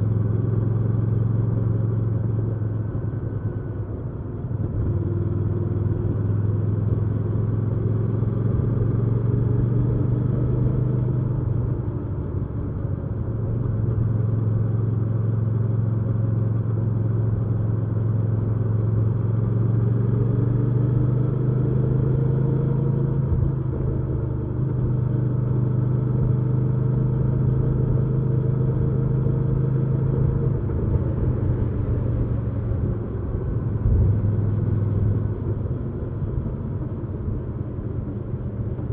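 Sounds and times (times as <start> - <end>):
motorcycle engine running: 21.4 - 38.9.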